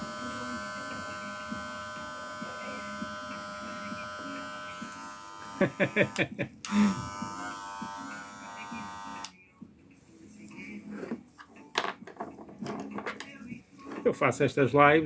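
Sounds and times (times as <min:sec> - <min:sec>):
electric hair clipper humming: 0:00.0 - 0:09.3.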